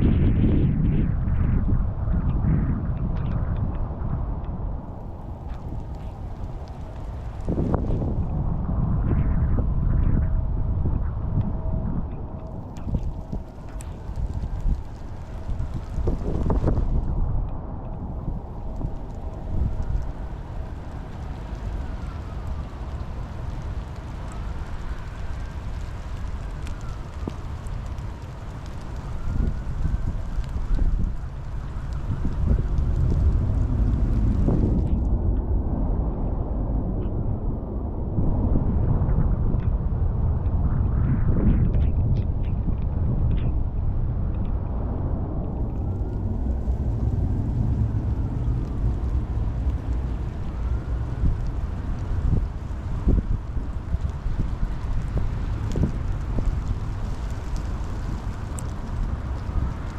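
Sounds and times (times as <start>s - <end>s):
deep low rumble: 0.0s - 59.9s
faint whine: 4.2s - 59.9s
steady rain falling: 4.8s - 8.3s, 12.4s - 17.3s, 17.9s - 35.2s, 45.5s - 59.9s.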